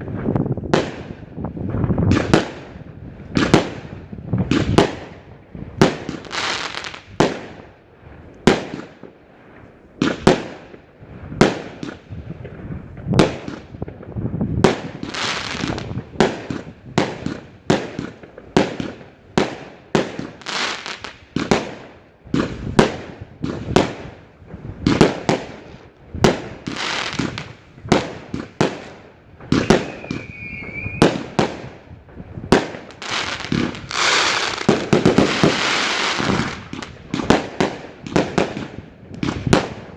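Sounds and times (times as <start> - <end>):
firework whistle: 29.5 - 31.4.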